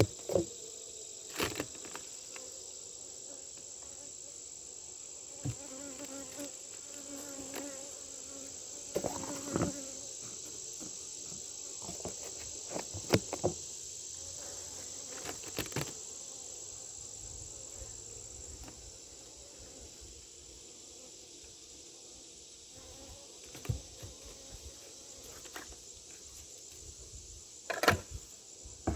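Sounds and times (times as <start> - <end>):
bees buzzing: 0.0 - 21.8
high-pitched insect trill: 0.0 - 28.9.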